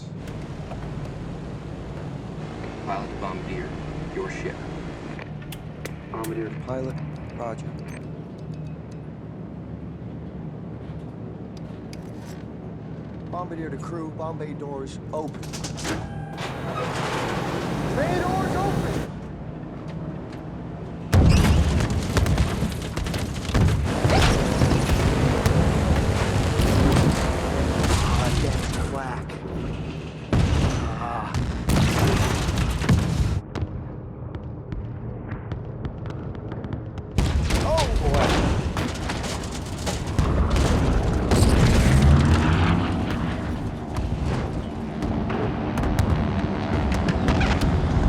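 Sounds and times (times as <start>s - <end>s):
heavy low rumble with booms: 21.1s - 48.0s.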